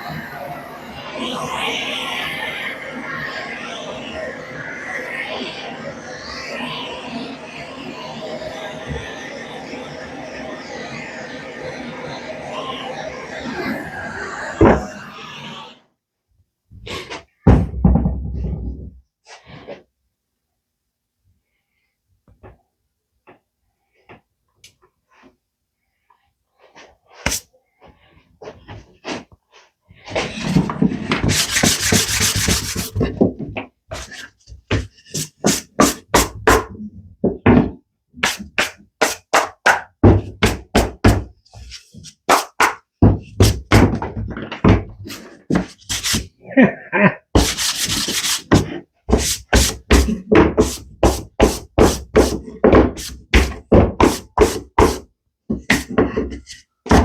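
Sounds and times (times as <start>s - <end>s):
sandpaper rubbing on wood: 31.2s - 33.0s, 45.5s - 46.3s, 47.4s - 52.4s.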